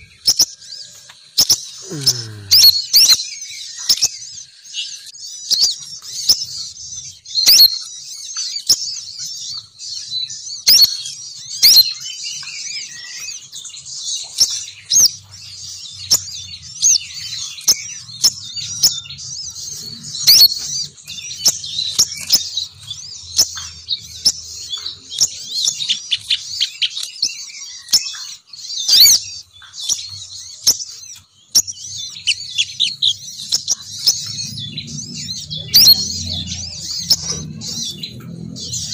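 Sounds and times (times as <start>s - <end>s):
bird twittering and chirping: 0.0s - 38.9s
sharp loud bird notes: 1.4s - 3.5s, 14.8s - 38.9s.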